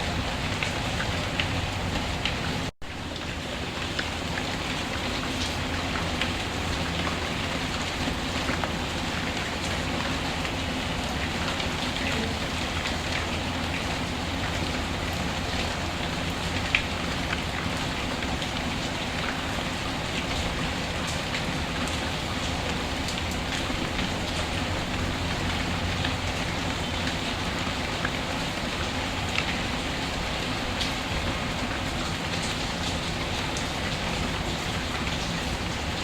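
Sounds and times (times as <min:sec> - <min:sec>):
steady rain: 0:00.0 - 0:36.0.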